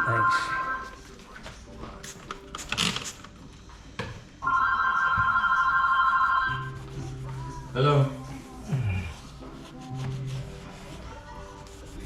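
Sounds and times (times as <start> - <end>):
telephone ringing: 0.0 - 1.0, 4.4 - 6.7.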